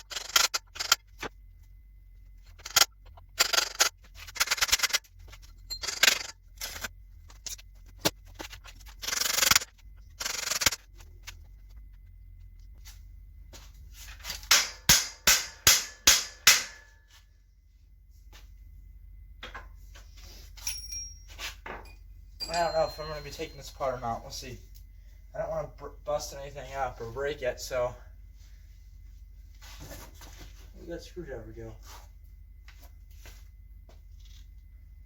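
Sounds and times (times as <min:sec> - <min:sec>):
rapid ratchet clicking: 0:08.9 - 0:10.8
sharp metallic knocks: 0:14.4 - 0:17.0
metal tools clattering: 0:20.6 - 0:24.2.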